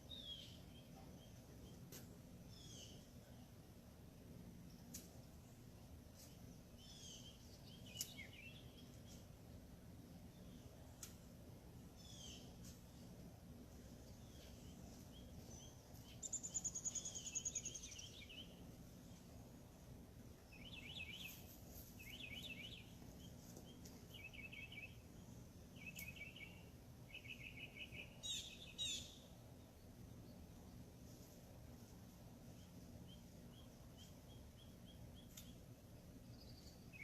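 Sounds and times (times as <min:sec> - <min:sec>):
low background hum: 0:00.0 - 0:37.0
wild birds calling and singing: 0:13.8 - 0:19.4, 0:20.4 - 0:31.3.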